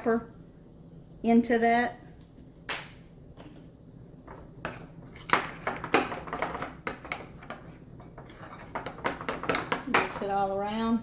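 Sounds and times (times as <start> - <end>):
spoon scraping a bowl: 4.6 - 10.5.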